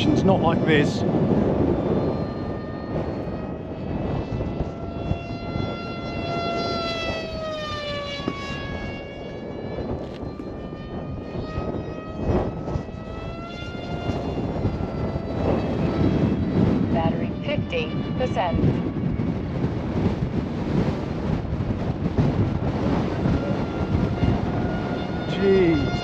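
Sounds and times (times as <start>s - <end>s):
wind rumble on microphone: 0.0s - 26.0s
rc plane motor whining: 1.1s - 20.1s.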